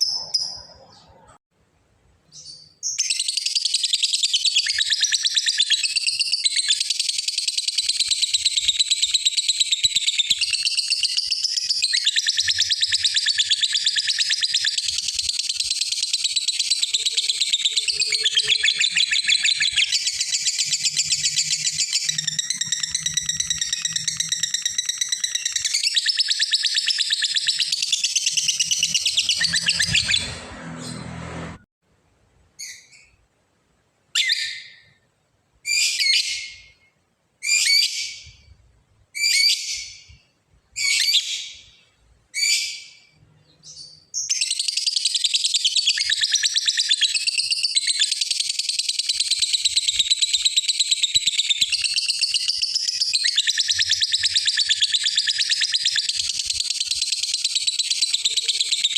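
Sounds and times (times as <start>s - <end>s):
lovebird chattering trill: 0.0s - 1.3s, 2.4s - 30.4s, 43.7s - 58.9s.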